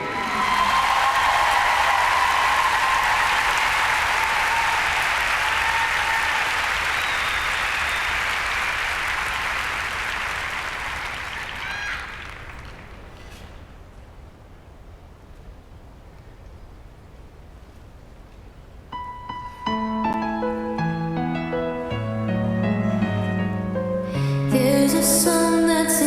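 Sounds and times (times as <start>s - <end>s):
crowd applauding and cheering: 0.0s - 13.1s.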